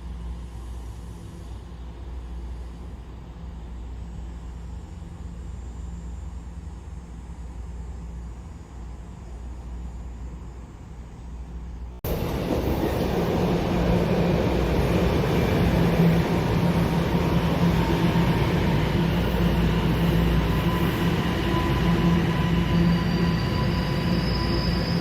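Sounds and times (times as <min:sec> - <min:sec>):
subway train rail rumble: 0:00.0 - 0:25.0.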